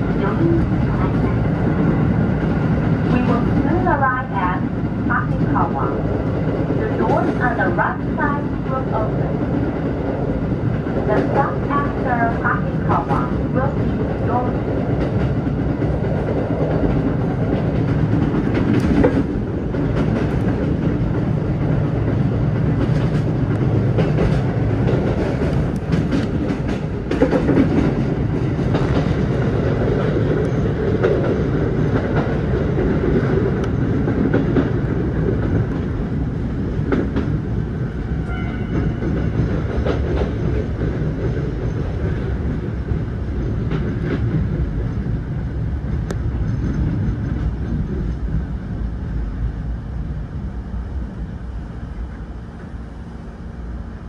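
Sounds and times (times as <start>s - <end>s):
train running noise: 0.0s - 54.0s
wheels clicking over rail joints: 10.7s - 37.6s, 38.2s - 45.1s.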